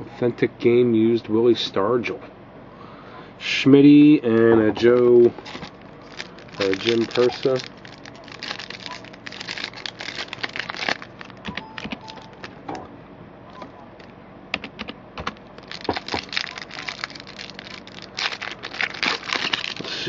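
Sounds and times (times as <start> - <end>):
cards being handled: 4.8 - 12.6
card pack wrapper crinkling: 4.9 - 12.7, 15.3 - 20.0.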